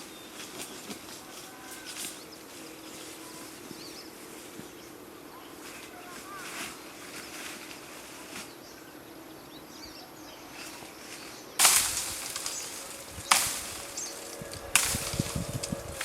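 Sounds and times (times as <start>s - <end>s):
loud noisy crashes: 11.6s - 16.0s.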